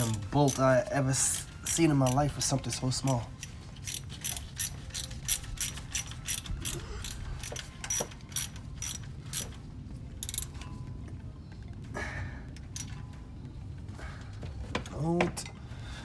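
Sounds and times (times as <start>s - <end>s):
socket ratchet clicking: 0.0s - 9.6s, 10.2s - 10.6s, 12.8s - 13.0s.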